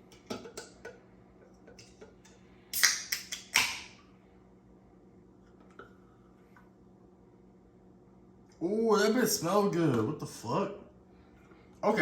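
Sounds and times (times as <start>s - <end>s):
can pop with hiss of gas: 2.7s - 3.9s
soda can opening clicks: 2.7s - 4.0s.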